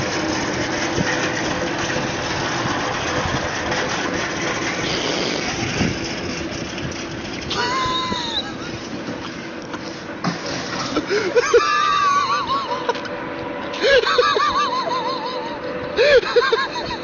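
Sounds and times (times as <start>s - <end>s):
engine running: 0.0s - 17.0s
low hum: 0.0s - 17.0s.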